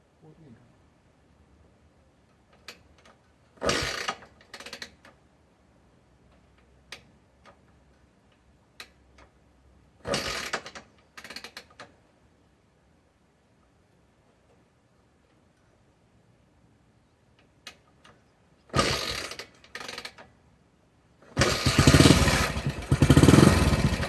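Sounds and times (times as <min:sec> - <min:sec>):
motorcycle engine kick-start clatter: 0:02.6 - 0:05.1, 0:10.0 - 0:11.9, 0:18.7 - 0:20.3, 0:21.3 - 0:24.0.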